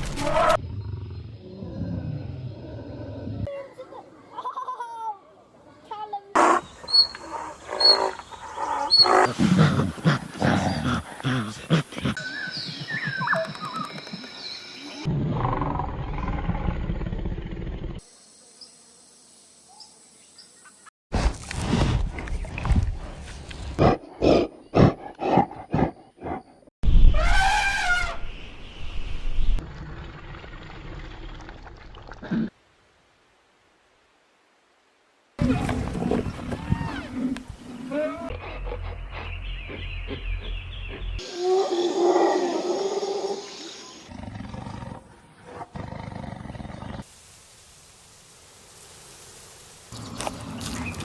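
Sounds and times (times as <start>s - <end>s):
rising and falling animal call: 6.4s - 11.1s
animal sounds: 6.4s - 16.7s, 35.4s - 47.0s, 50.0s - 51.0s
big cat roaring: 44.1s - 47.0s.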